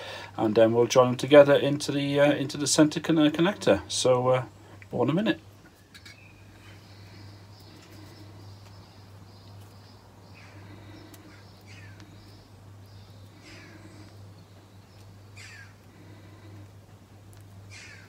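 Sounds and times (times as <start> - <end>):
steady low hum: 0.0 - 18.0
faint bird calls: 5.7 - 16.8, 17.6 - 18.0.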